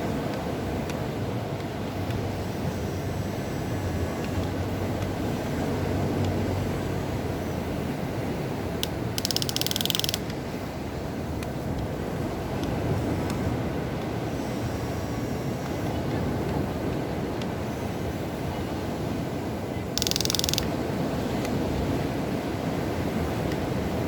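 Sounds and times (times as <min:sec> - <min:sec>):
rapid clicking: 0:08.8 - 0:10.3, 0:20.0 - 0:20.7
toy excavator electric motors: 0:08.8 - 0:10.4, 0:20.0 - 0:20.8.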